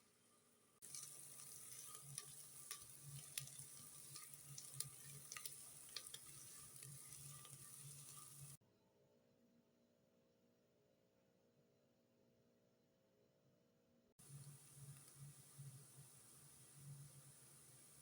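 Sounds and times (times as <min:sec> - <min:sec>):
food frying in oil: 0:00.0 - 0:08.6, 0:14.2 - 0:18.0.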